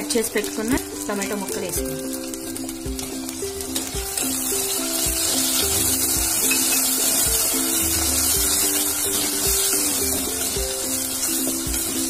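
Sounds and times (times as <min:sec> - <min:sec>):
tomatoes sizzling in hot oil: 0:00.0 - 0:12.0
background music with a beat: 0:00.1 - 0:12.0.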